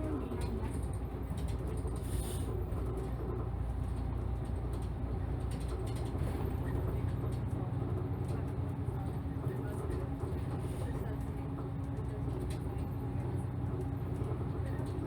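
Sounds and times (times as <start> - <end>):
bus engine humming: 0.0 - 15.0
creaks and rattles of bus body: 0.0 - 15.0.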